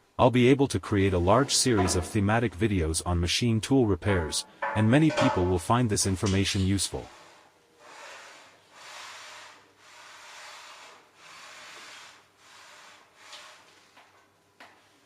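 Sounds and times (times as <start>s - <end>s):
metal rubbing on grinder guideway: 1.1s - 2.4s.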